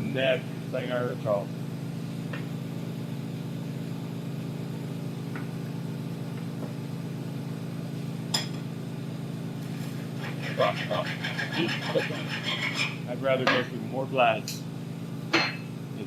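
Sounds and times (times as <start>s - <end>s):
glass clink: 8.3s - 8.6s, 15.3s - 15.7s.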